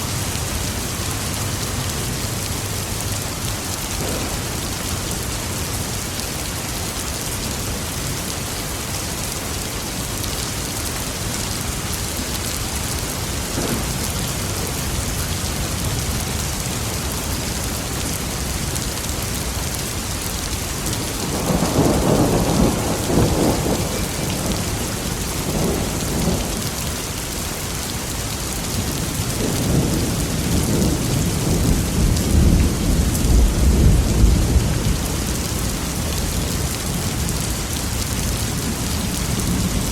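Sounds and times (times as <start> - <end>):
heavy rain: 0.0 - 39.9
rolling thunder: 3.9 - 5.6, 13.5 - 16.9, 20.9 - 26.8, 28.9 - 35.6.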